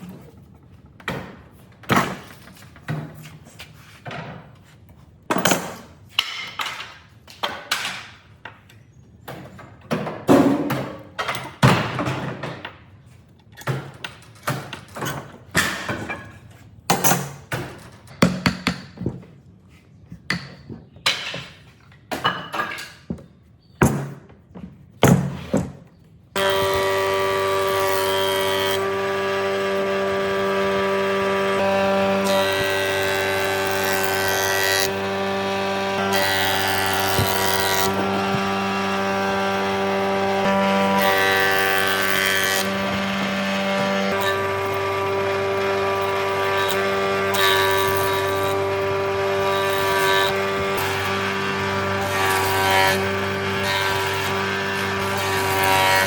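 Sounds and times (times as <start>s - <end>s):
power tool motor whining: 26.4s - 56.0s.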